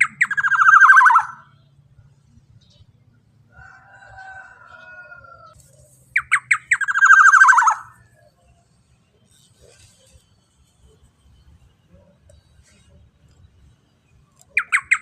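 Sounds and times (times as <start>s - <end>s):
bird warbling: 0.0s - 1.6s, 6.1s - 8.2s, 14.5s - 15.0s
sharp down-slurred bird notes: 0.0s - 1.6s, 6.2s - 8.0s, 14.5s - 15.0s.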